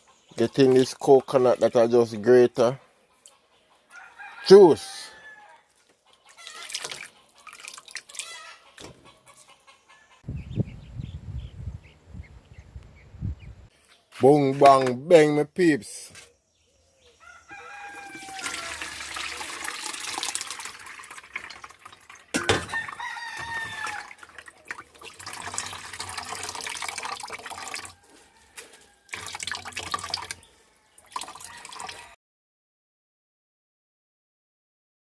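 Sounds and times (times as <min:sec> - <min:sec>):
rooster crowing: 0:03.9 - 0:05.7, 0:17.2 - 0:19.4, 0:22.4 - 0:24.2, 0:27.6 - 0:29.2, 0:31.3 - 0:32.2
water splashing and trickling: 0:05.7 - 0:08.9, 0:17.7 - 0:32.2.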